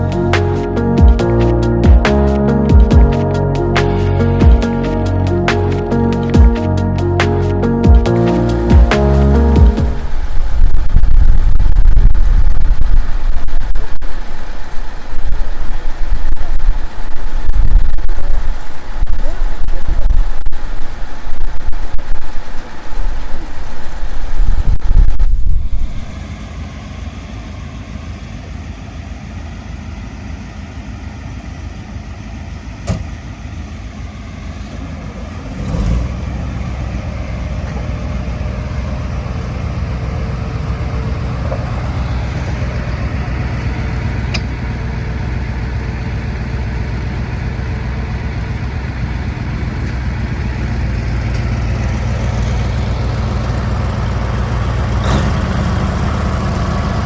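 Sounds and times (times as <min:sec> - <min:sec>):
tractor engine rumbling: 0:00.0 - 0:57.0.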